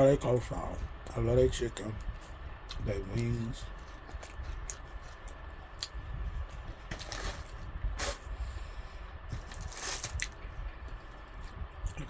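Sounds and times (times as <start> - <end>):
chewing fried chicken: 1.9 - 7.8.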